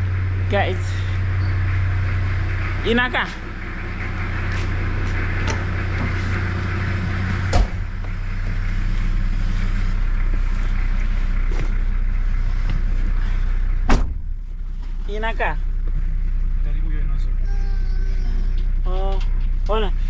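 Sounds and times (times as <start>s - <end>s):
car engine idling: 0.0s - 20.0s
car doors shutting: 7.5s - 8.2s, 13.8s - 14.3s.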